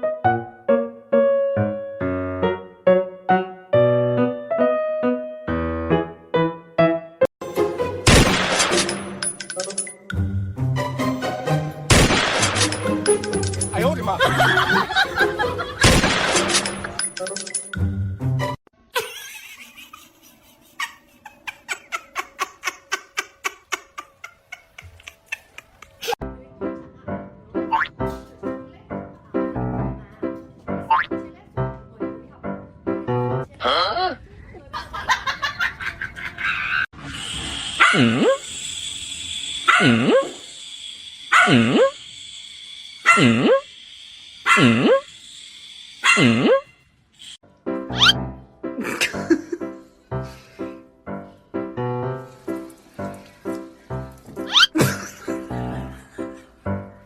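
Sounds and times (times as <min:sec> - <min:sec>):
dog barking: 0:37.8 - 0:38.4, 0:39.7 - 0:40.3, 0:41.3 - 0:41.9, 0:43.0 - 0:43.6, 0:44.5 - 0:45.0, 0:46.0 - 0:46.6
animal making short rapid calls: 0:48.0 - 0:48.2, 0:54.5 - 0:54.7
animal wavering cry: 0:54.5 - 0:54.8.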